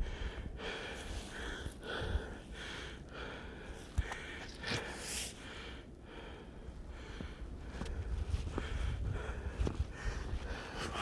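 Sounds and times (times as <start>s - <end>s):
man breathing hard: 0.0s - 11.0s.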